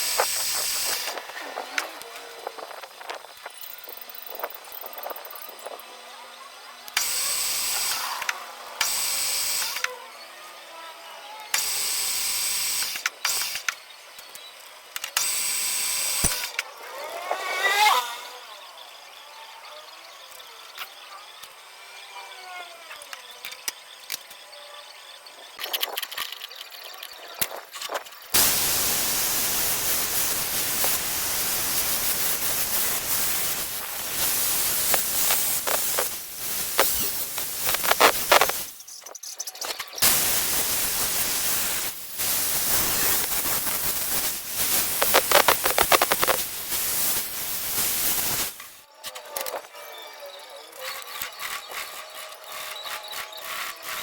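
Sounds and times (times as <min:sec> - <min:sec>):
loud steady hiss: 0:00.0 - 0:05.8, 0:06.9 - 0:09.9, 0:28.3 - 0:38.9, 0:40.0 - 0:48.9
power tool whining: 0:15.0 - 0:24.4, 0:28.3 - 0:38.8, 0:50.6 - 0:54.0
sharp clicks: 0:32.6 - 0:40.2, 0:42.7 - 0:46.5.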